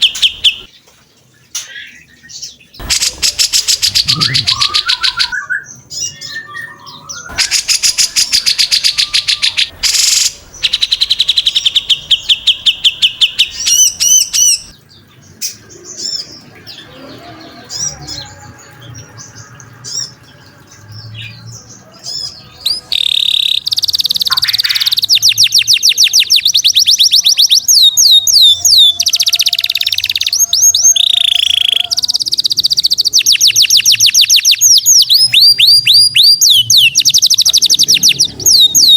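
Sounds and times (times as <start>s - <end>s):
songbird trills and whistles: 2.8s - 14.7s, 22.6s - 38.9s.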